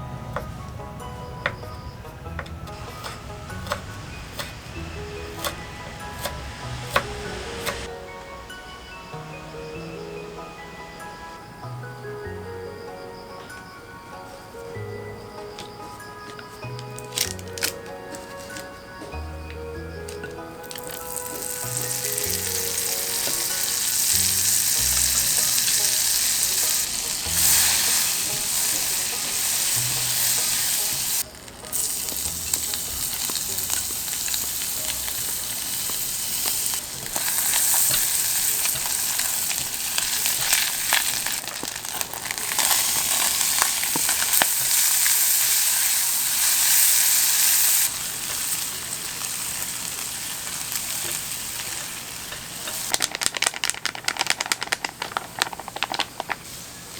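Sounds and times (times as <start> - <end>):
oil sizzling in a frying pan: 0.0 - 7.9, 20.0 - 56.7.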